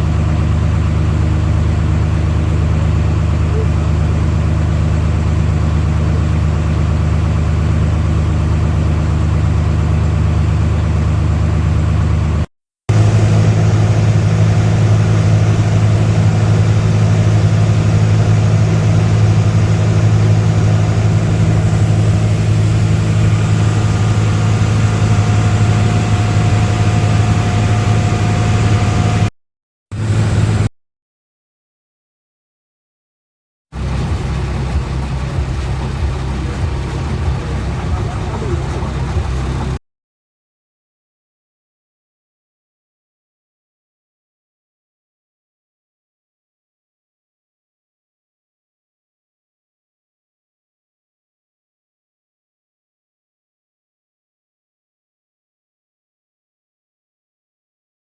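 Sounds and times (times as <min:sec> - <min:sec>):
engine running steadily: 0:00.0 - 0:29.3, 0:30.0 - 0:30.7, 0:33.8 - 0:39.8.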